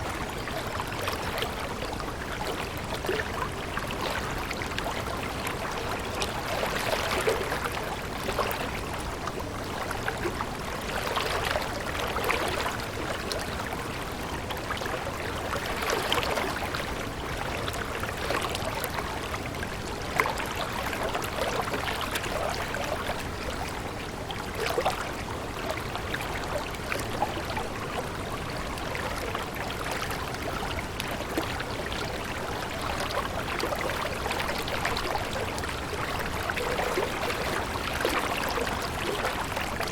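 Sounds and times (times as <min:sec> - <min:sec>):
stream water splashing: 0:14.2 - 0:39.9.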